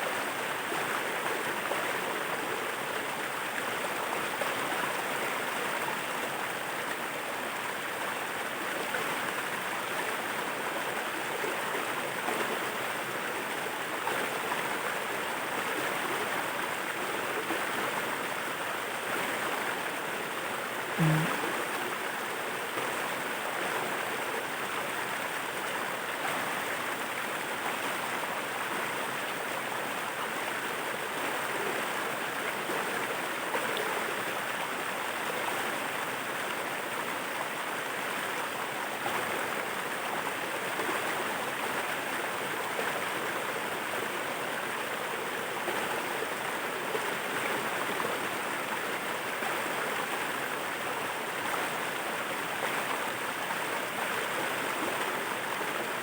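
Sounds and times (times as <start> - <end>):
brief low thump: 21.0 - 21.4.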